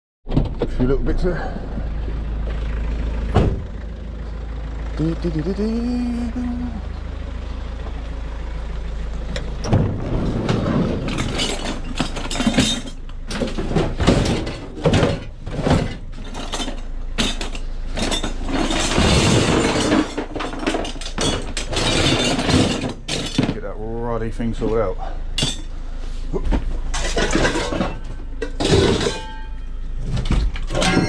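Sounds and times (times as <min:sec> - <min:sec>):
vehicle engine idling: 0:00.6 - 0:31.0
scrap knocking and clattering: 0:09.7 - 0:23.6, 0:26.4 - 0:31.0.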